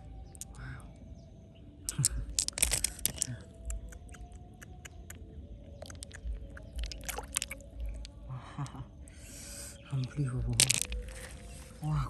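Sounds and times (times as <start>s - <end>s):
faint steady hum: 0.0s - 12.0s
hard objects clicking and scraping: 1.9s - 3.4s, 10.5s - 11.6s.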